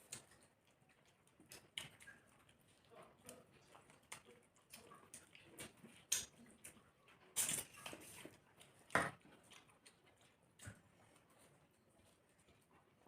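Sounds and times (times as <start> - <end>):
wet chewing and lip-smacking: 0.0 - 13.0.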